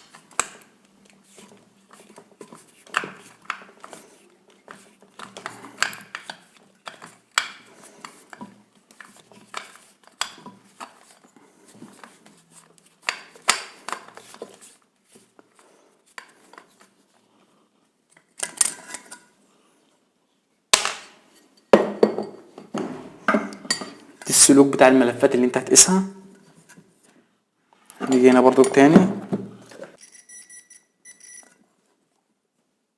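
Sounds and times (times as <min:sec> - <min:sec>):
metal parts and tools clinking: 0:28.0 - 0:31.6.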